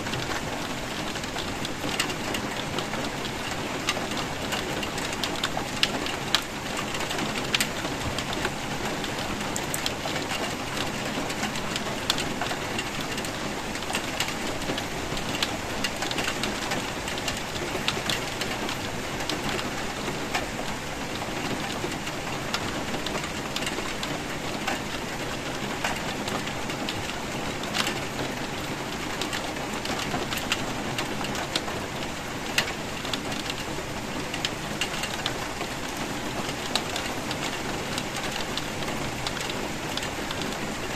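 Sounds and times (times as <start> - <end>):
raindrops ticking on a surface: 0.0 - 40.9.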